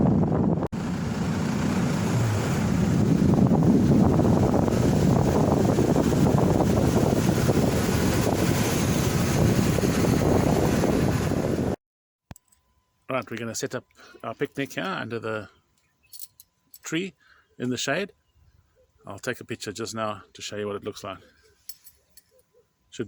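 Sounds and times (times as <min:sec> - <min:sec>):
vehicle engine rumble: 0:00.0 - 0:11.8
wind: 0:00.0 - 0:23.0.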